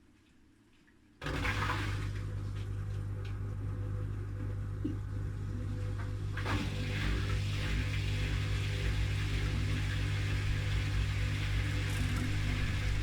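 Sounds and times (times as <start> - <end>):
wet laundry sloshing: 0.7 - 3.6, 5.7 - 13.0
washing machine motor humming: 1.2 - 13.0.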